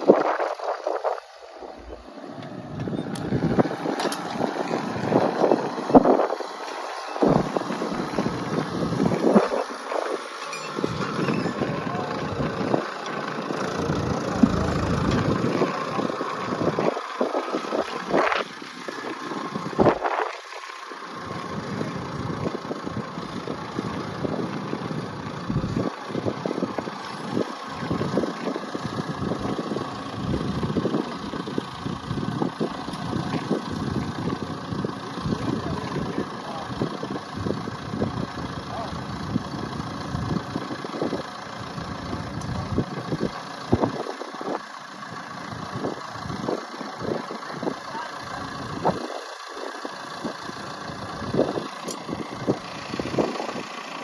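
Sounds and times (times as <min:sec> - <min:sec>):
vehicle engine running: 0:00.0 - 0:54.0
wind buffeting microphone: 0:02.7 - 0:20.4.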